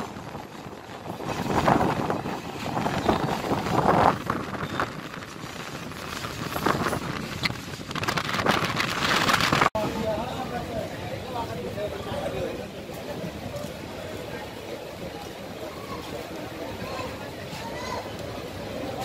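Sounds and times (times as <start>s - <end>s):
wind buffeting microphone: 0.0s - 9.8s
train wheels rumbling on track: 0.0s - 19.0s.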